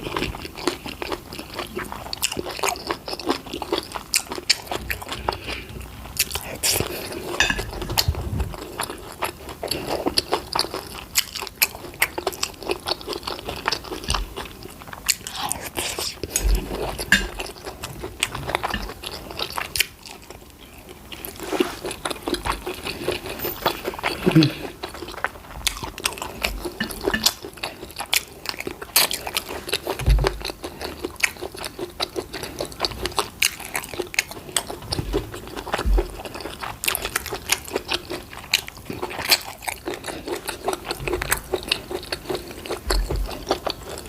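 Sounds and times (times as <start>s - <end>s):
chewing and wet crunches: 0.0s - 44.0s.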